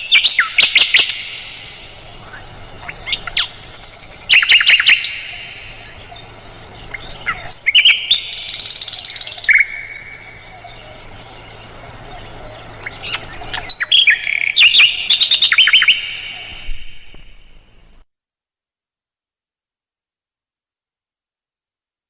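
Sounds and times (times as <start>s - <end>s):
bird singing chips and trills: 0.0s - 17.6s.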